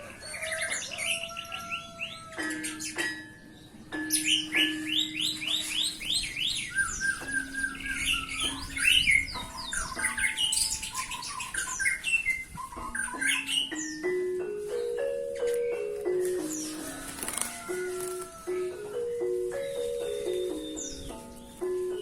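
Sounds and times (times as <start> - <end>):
canary singing: 0.0 - 22.0
background music: 0.2 - 12.0, 12.8 - 22.0.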